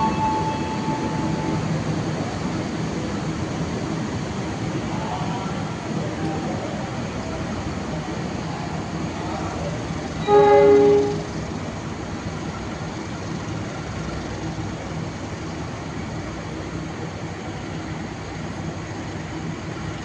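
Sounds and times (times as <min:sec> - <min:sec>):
train horn blast: 0:00.0 - 0:01.8, 0:10.2 - 0:11.4
train rumbling: 0:00.0 - 0:20.0.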